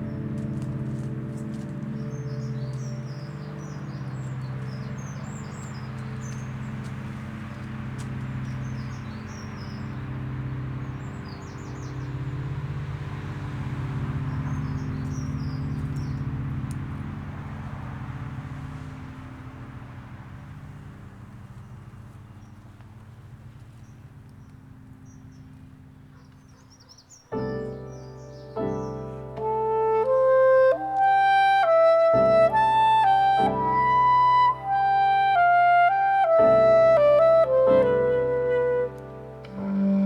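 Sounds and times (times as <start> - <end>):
small birds chirping: 0.0 - 30.8
car passing: 0.0 - 40.0
road traffic hum: 0.0 - 40.0.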